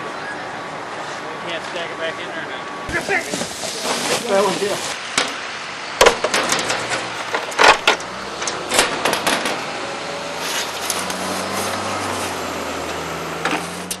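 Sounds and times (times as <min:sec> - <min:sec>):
outdoor noise: 0:00.0 - 0:14.0
shovels scraping in sand: 0:02.9 - 0:05.0, 0:10.4 - 0:12.4.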